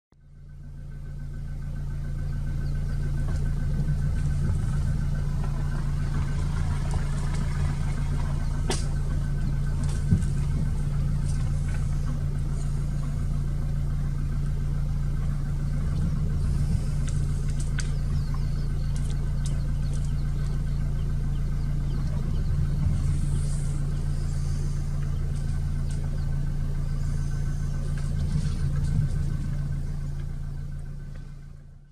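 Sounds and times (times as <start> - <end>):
vehicle engine idling: 0.1 - 31.9.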